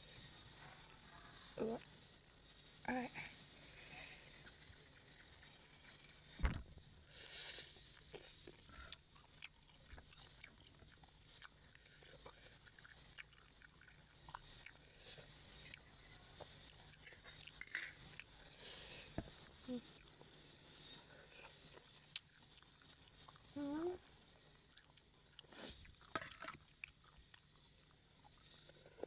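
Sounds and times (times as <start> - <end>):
person chewing: 8.0 - 18.6, 24.5 - 29.0.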